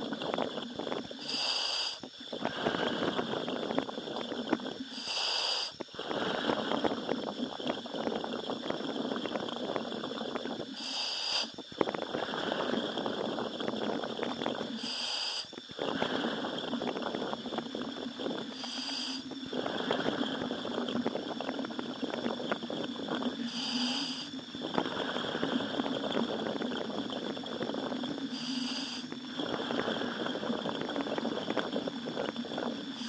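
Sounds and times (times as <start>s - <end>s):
hiss of inhalation: 1.2s - 3.4s, 4.9s - 7.0s, 10.7s - 13.0s, 14.7s - 16.6s, 18.5s - 20.4s, 23.4s - 25.8s, 28.3s - 30.4s
bubbling exhalation: 2.3s - 4.8s, 5.9s - 10.7s, 11.8s - 14.8s, 15.7s - 33.0s.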